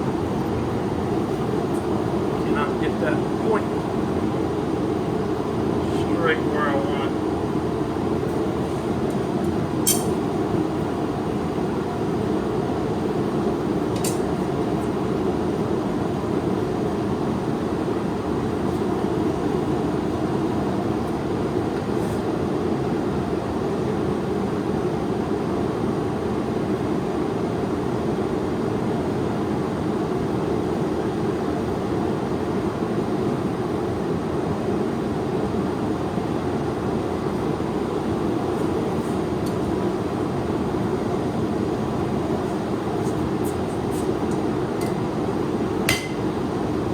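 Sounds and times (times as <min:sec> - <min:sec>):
forge running low noise: 0:00.0 - 0:21.7.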